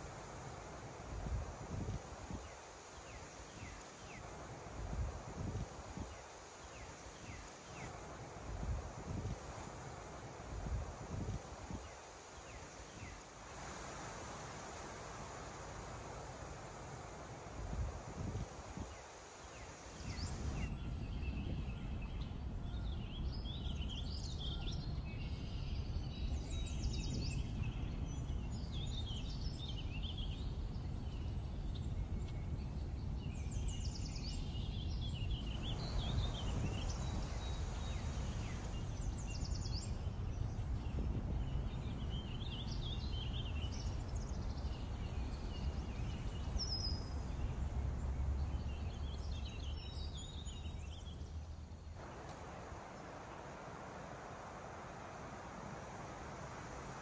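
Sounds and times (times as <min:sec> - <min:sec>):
broad wash of noise: 0:00.0 - 0:20.7, 0:35.4 - 0:39.8, 0:44.9 - 0:50.0, 0:50.6 - 0:57.0.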